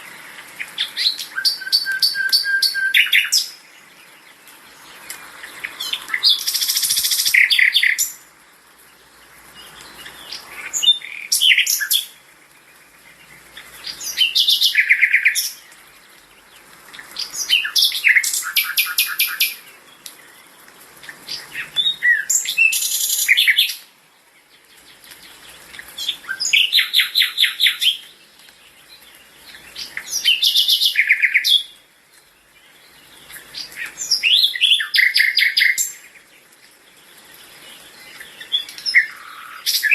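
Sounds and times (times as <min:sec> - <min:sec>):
songbird trills and chirps: 0:00.1 - 0:39.9.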